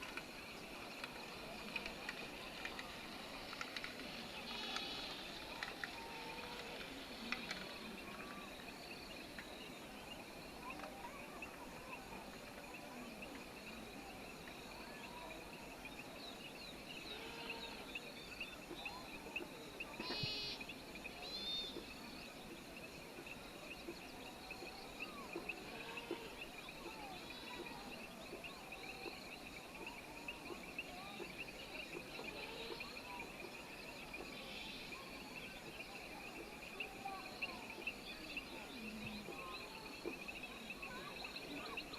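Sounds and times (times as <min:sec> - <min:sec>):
bird and animal calls: 0:17.0 - 0:22.0, 0:23.8 - 0:33.2.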